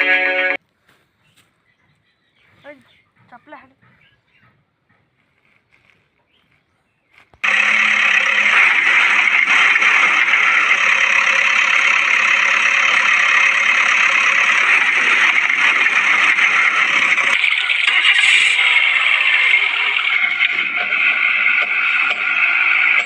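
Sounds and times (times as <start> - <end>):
rattling: 7.4 - 23.0
truck engine running: 7.4 - 23.0.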